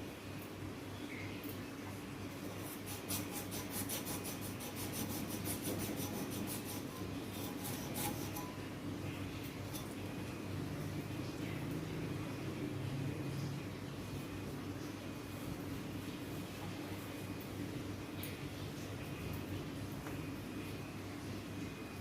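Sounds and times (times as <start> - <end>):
rapid scraping strokes: 2.6 - 8.5.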